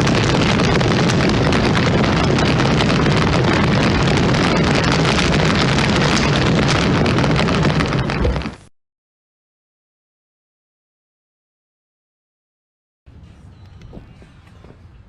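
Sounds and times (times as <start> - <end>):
wind noise on microphone: 0.0 - 8.7, 13.5 - 15.0.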